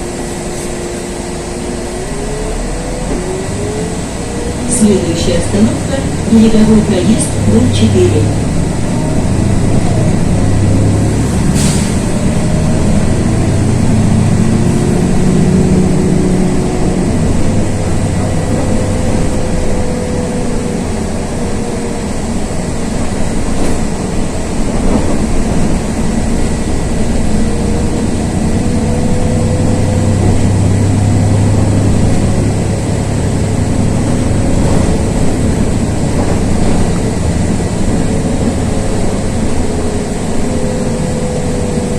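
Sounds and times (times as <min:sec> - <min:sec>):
transmission whine: 0:00.0 - 0:11.4
bus engine drone: 0:00.0 - 0:41.9
road noise: 0:00.0 - 0:41.9.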